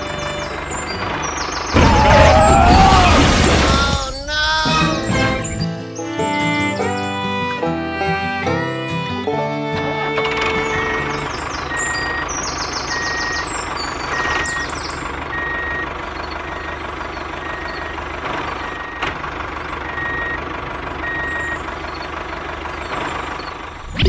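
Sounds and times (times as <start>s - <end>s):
engine running: 0.0s - 24.0s
reversing alarm beeping: 10.5s - 19.1s, 19.8s - 22.2s.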